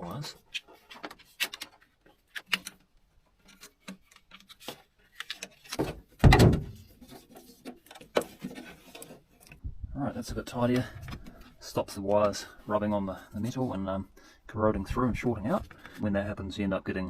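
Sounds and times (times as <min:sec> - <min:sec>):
thump: 0:05.8 - 0:06.8.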